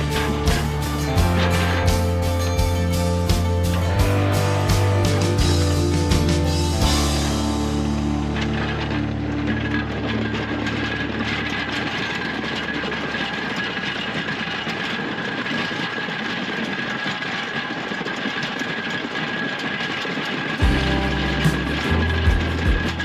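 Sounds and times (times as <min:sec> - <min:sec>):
high whine: 0:00.0 - 0:13.1.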